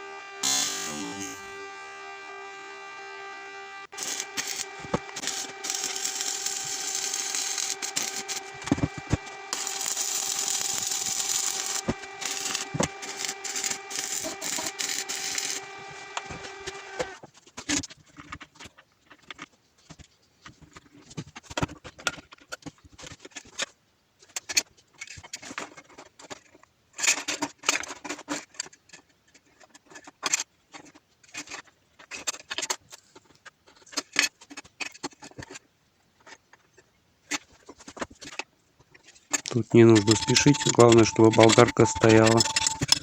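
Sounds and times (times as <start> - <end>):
metal tools clinking and rattling: 39.8 - 43.0.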